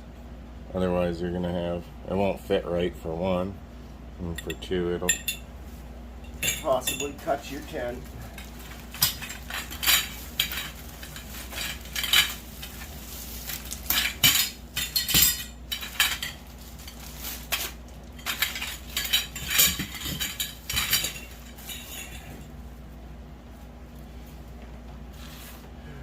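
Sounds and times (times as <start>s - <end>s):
metal poles clanking: 13.8s - 22.5s.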